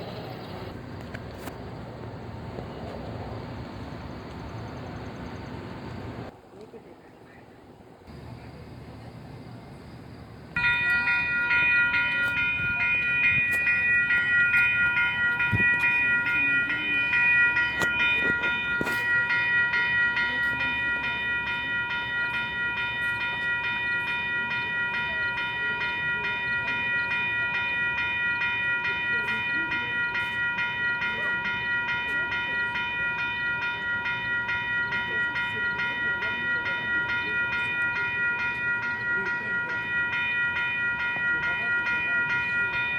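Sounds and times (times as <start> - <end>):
train rumble: 0.0 - 6.8, 7.7 - 42.9
high-pitched ringing tone: 10.5 - 42.9.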